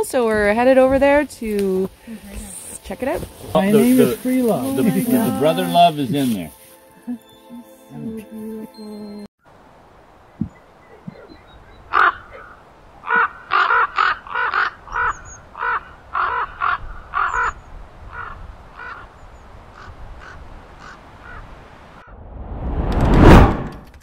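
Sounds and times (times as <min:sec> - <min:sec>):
bird cawing harshly: 0:11.9 - 0:17.5, 0:18.1 - 0:19.1, 0:19.7 - 0:21.4.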